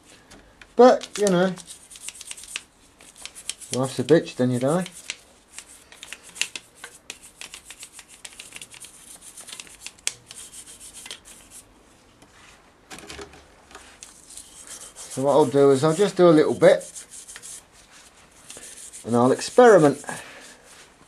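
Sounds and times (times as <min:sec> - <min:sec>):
toothbrush scrubbing engine casing: 0:14.1 - 0:17.6, 0:18.5 - 0:20.2.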